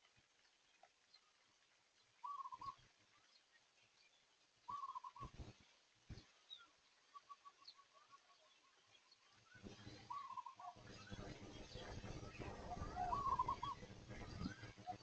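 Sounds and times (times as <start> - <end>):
faint bird calls: 2.1 - 3.5, 4.6 - 15.0.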